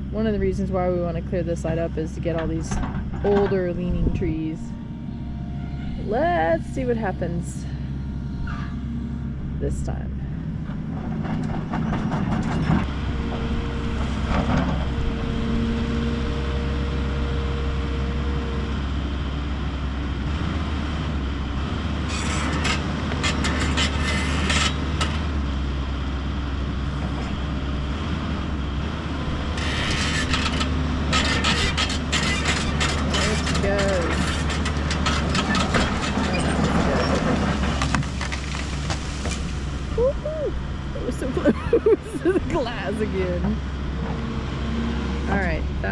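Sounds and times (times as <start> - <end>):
diesel engine running under load: 0.0 - 45.9
hydraulic whine: 2.2 - 18.9.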